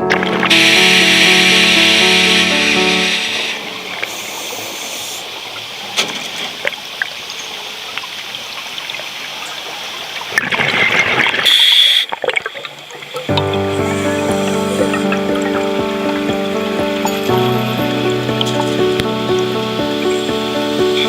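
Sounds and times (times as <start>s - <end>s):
rush of water: 0.0s - 21.0s
water trickling and gurgling: 3.5s - 20.1s.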